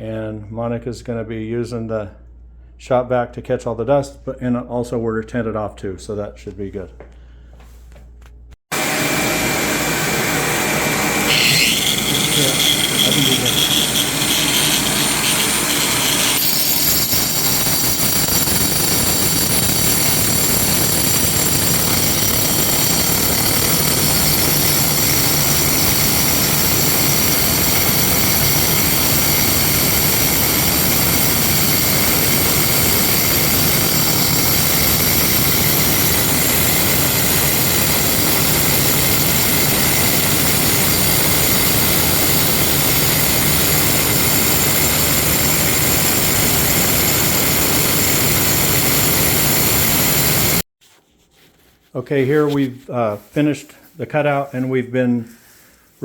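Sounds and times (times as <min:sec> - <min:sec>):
grinder cutting stone: 0:08.7 - 0:50.6
shop vac running: 0:08.7 - 0:50.7.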